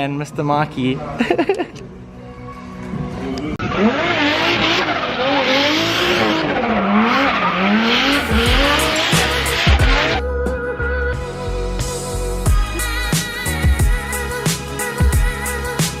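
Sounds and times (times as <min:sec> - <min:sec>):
music: 0:00.0 - 0:03.6, 0:08.1 - 0:16.0
car engine revving: 0:03.4 - 0:10.2.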